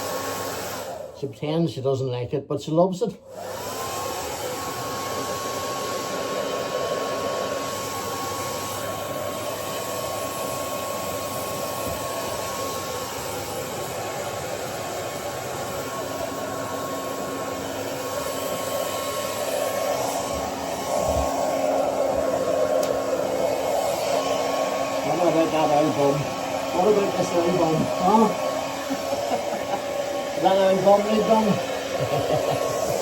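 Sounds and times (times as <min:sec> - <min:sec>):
hair dryer blowing: 0:00.0 - 0:01.2, 0:03.2 - 0:33.0.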